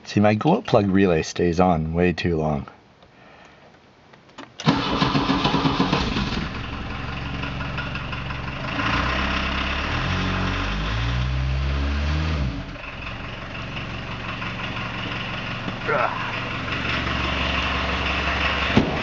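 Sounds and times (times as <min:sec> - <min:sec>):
diesel engine idling: 0:04.7 - 0:19.0.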